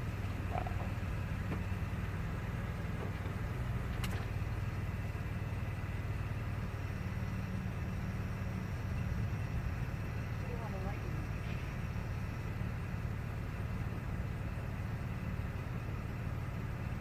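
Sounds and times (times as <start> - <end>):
motor humming: 0.0 - 4.9.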